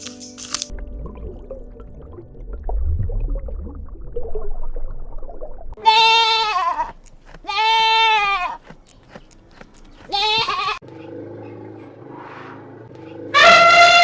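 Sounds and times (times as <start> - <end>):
livestock bleating: 5.8 - 8.6, 10.1 - 10.8.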